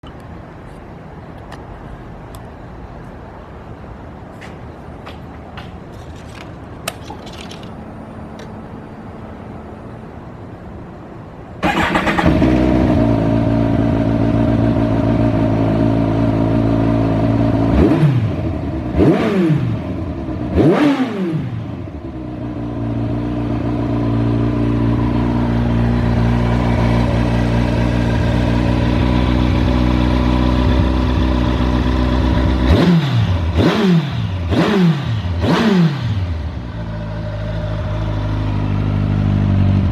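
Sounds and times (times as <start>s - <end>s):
motorcycle engine idling: 36.2s - 39.9s.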